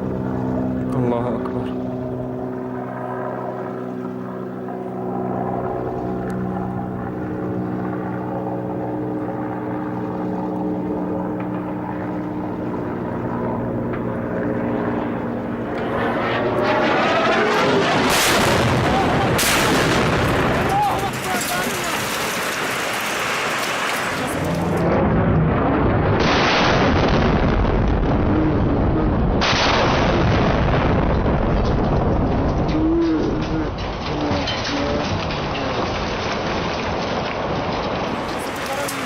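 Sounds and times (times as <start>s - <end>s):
aircraft engine droning overhead: 0.0s - 26.3s, 30.2s - 39.0s.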